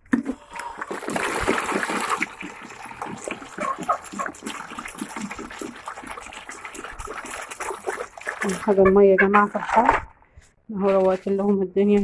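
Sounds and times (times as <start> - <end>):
water pouring and splashing: 0.0 - 8.9
chickens calling: 2.8 - 4.5, 8.4 - 9.8.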